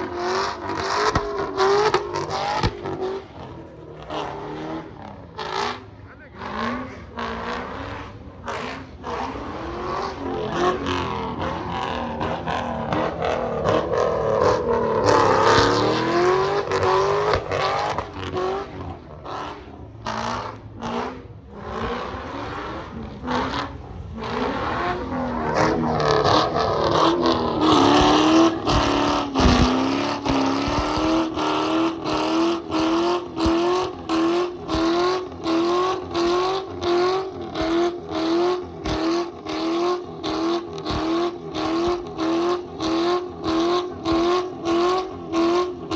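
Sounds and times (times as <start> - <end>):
car engine revving: 0.0 - 45.9.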